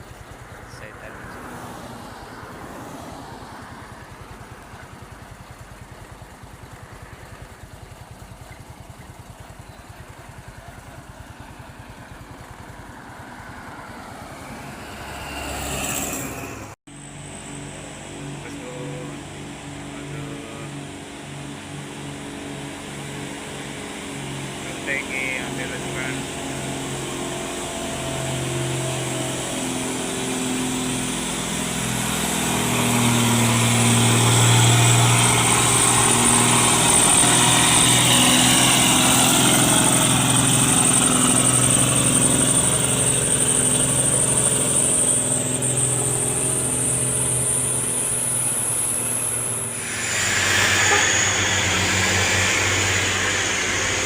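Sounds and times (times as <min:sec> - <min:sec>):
diesel engine under load: 0:00.0 - 0:54.0
high whine: 0:13.7 - 0:54.0
broad rushing hiss: 0:48.4 - 0:54.0.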